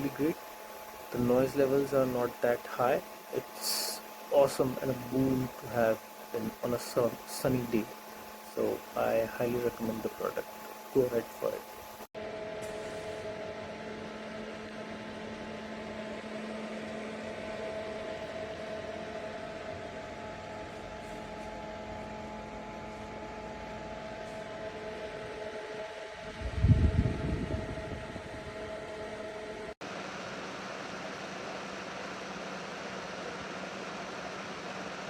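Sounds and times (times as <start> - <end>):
air cooler fan humming: 0.0 - 35.0
low rumble: 26.2 - 28.6.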